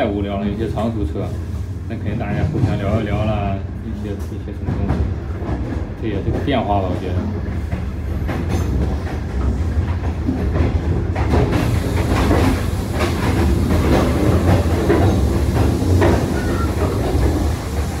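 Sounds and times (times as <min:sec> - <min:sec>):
train rumbling: 0:00.0 - 0:18.0
wheels clacking over track: 0:04.2 - 0:18.0
hiss: 0:11.4 - 0:18.0.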